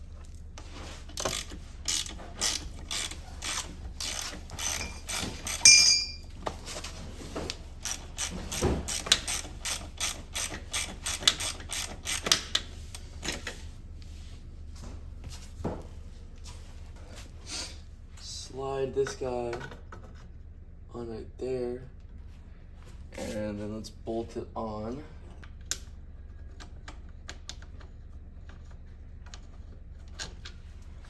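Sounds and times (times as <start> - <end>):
ratchet wrench clicking: 1.2 - 6.2, 8.9 - 12.6
ringing metal clank: 5.6 - 6.3.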